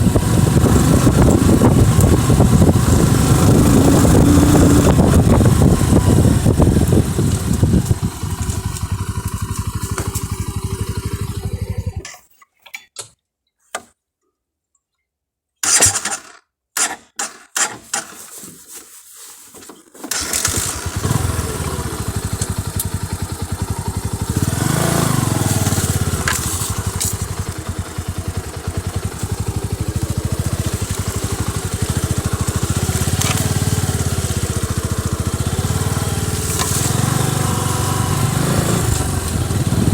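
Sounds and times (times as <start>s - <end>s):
motorcycle engine running: 0.0s - 12.0s, 20.1s - 39.9s.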